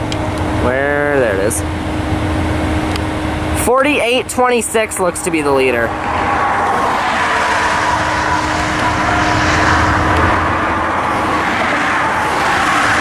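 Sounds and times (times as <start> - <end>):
diesel locomotive engines rumbling: 0.0 - 13.0
steady tone: 1.6 - 13.0
train wheels on rail: 5.2 - 13.0.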